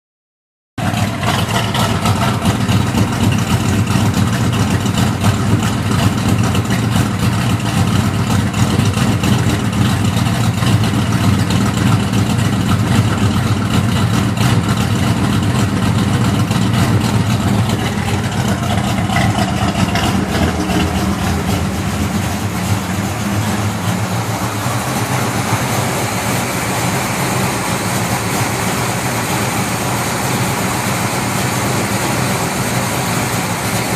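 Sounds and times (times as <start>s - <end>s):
engine idling with a lopey rhythm: 0.8s - 33.9s.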